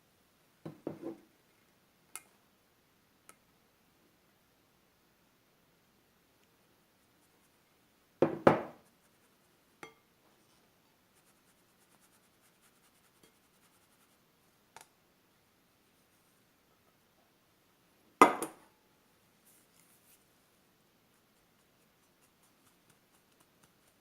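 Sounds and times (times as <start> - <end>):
utensil knocking on bowl: 8.2 - 8.7.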